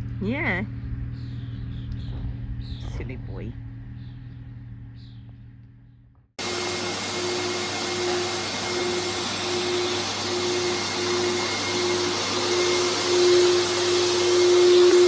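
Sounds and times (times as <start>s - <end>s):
pulsing hum: 0.0s - 15.0s
machine motor whirring: 6.4s - 15.0s.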